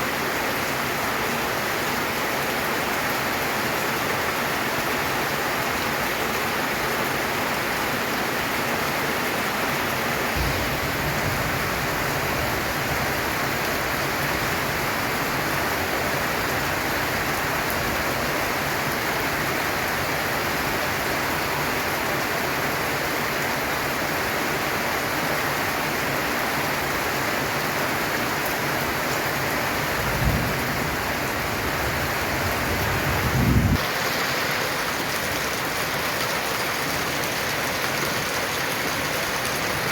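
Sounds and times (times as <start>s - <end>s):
heavy rain on a tin roof: 0.0s - 39.9s
low rumbles: 10.4s - 12.9s.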